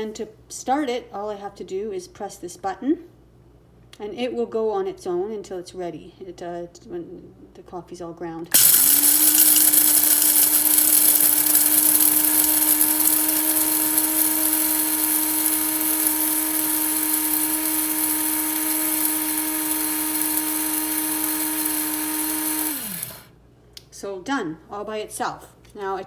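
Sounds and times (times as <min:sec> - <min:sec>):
electric coffee grinder grinding beans: 0:08.5 - 0:23.3.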